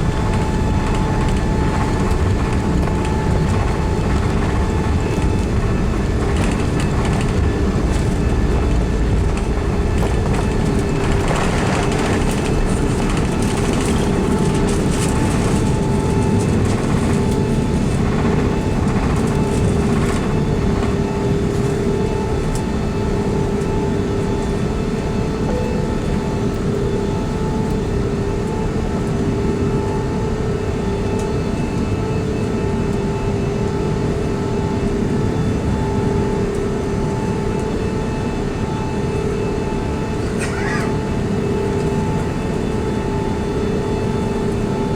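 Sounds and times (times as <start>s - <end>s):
airliner engine hum: 0.0s - 44.9s.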